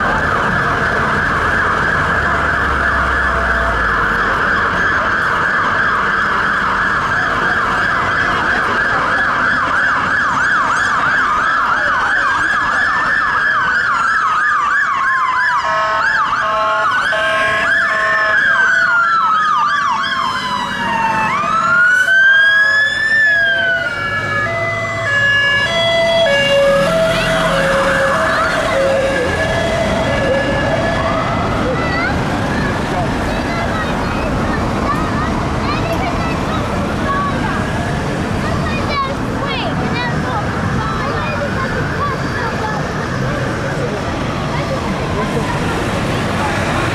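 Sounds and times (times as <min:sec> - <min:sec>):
fast yelp siren: 0:00.0 - 0:45.3
wailing sirens: 0:00.0 - 0:46.9.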